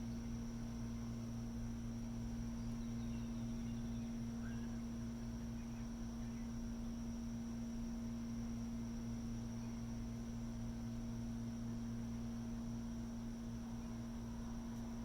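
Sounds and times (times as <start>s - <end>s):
distant machinery hum: 0.0s - 15.0s
faint bird chirps: 2.5s - 6.7s.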